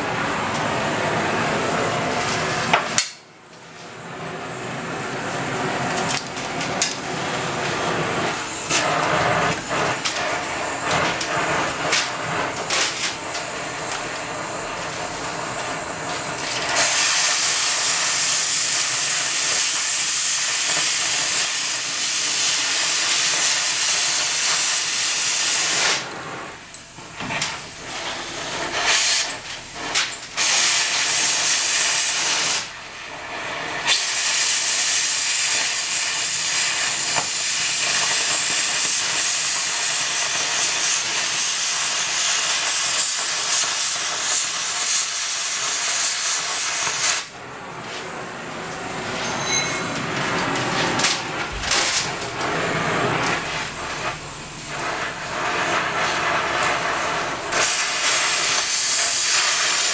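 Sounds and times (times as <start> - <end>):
shop tool hissing: 7.0 - 47.4, 51.1 - 59.9.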